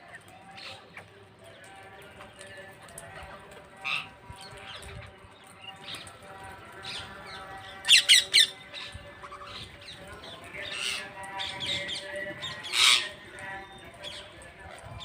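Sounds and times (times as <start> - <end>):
parrots squawking: 6.9 - 10.0, 10.6 - 13.2.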